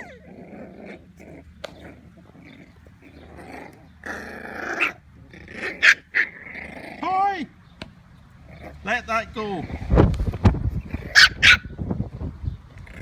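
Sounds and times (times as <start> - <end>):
puppies growling: 0.0 - 7.2, 8.3 - 8.9, 9.6 - 11.5, 12.7 - 13.0.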